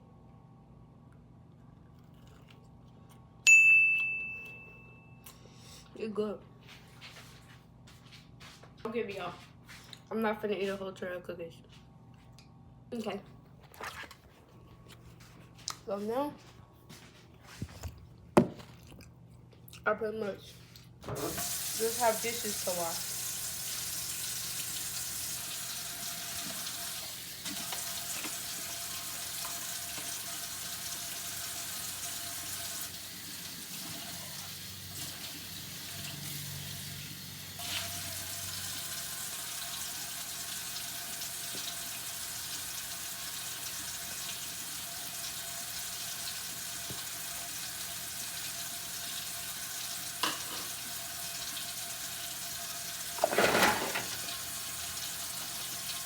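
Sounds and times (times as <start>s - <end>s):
dishes clinking: 50.2s - 50.8s, 53.2s - 54.3s.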